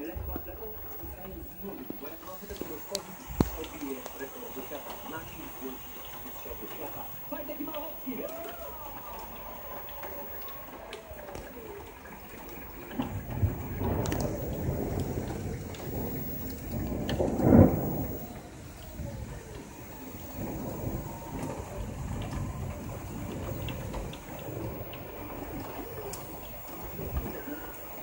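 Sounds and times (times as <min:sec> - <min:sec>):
heavy rain: 0:00.0 - 0:28.0
thunder rumbling: 0:00.0 - 0:28.0.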